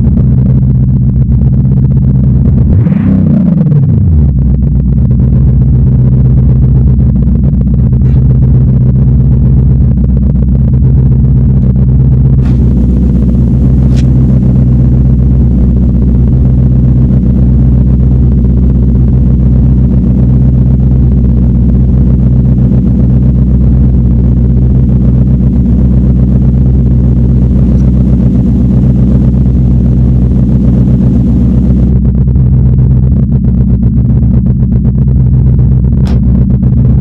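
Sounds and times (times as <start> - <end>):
car engine idling: 0.0 - 37.0
brief click: 36.0 - 36.2.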